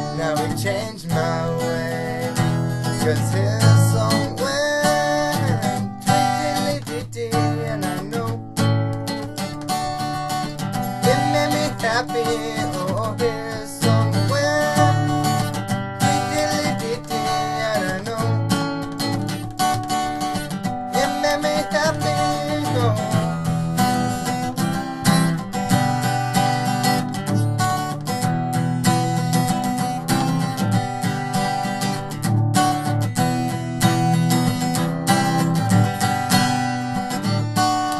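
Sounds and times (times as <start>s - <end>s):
wordless singing voice: 0.0s - 18.8s, 20.9s - 24.4s
acoustic guitar strumming: 0.0s - 37.9s.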